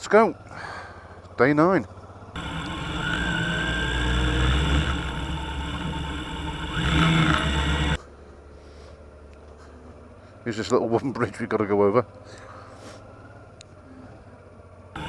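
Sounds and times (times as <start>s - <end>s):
motorcycle engine revving: 2.1s - 8.0s.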